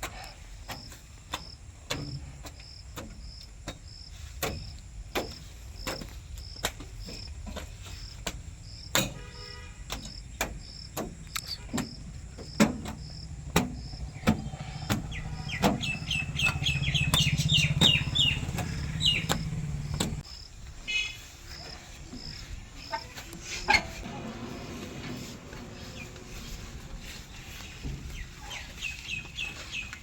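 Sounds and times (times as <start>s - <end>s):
birds twittering: 0.1s - 30.0s
cricket chirping: 0.2s - 24.0s
sharp clicks: 9.9s - 12.0s, 18.5s - 20.2s
low engine drone: 13.1s - 20.2s, 23.4s - 30.0s.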